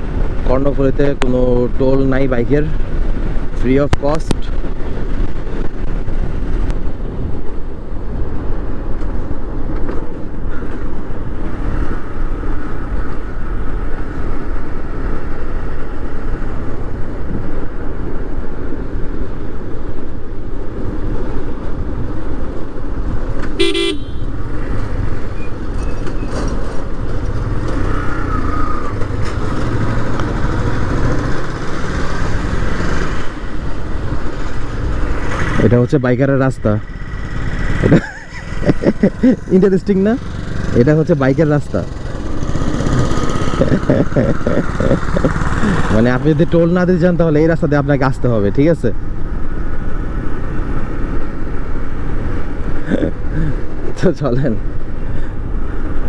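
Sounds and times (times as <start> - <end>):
wind and road noise: 0.0 - 56.0
vehicle horn toot: 23.6 - 24.5
motorcycle engine running: 23.6 - 35.8, 36.8 - 46.7.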